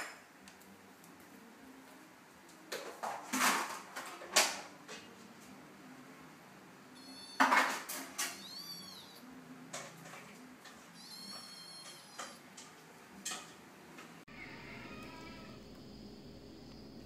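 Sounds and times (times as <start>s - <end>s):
cat high squeak: 7.0s - 7.6s, 8.2s - 9.2s, 10.9s - 12.4s.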